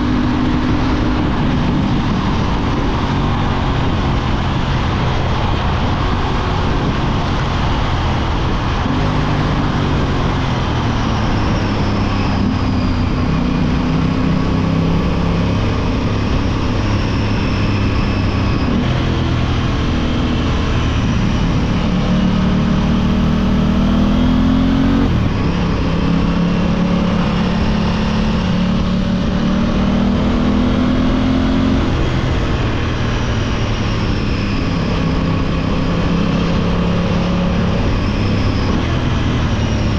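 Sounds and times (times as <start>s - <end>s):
heavy rushing noise: 0.0s - 39.9s
motorcycle engine revving: 0.0s - 39.9s.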